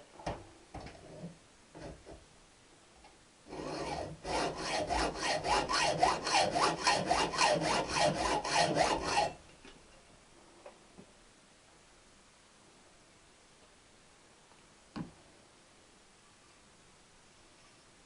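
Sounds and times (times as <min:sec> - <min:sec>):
hand saw cutting metal pipe: 0:03.5 - 0:09.4.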